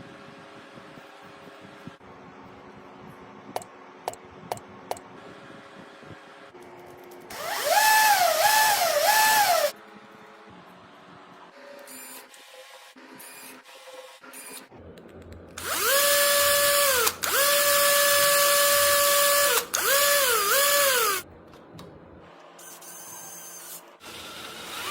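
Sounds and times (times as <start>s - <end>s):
power drill whining: 7.3s - 9.8s, 15.6s - 21.2s, 24.0s - 24.9s.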